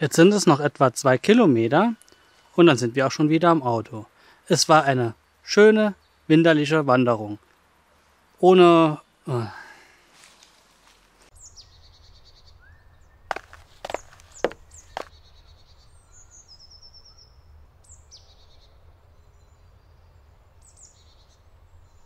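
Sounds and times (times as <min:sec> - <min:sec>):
small birds trilling: 0:11.4 - 0:20.0.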